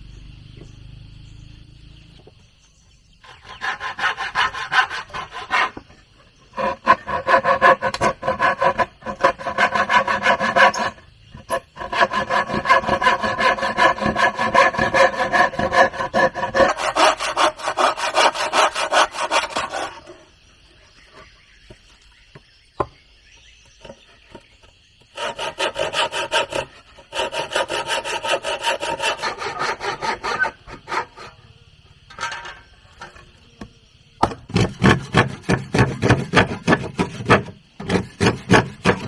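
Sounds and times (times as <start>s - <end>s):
hand saw cutting wood: 3.2s - 5.9s, 6.5s - 20.2s, 25.1s - 31.4s, 34.5s - 39.0s.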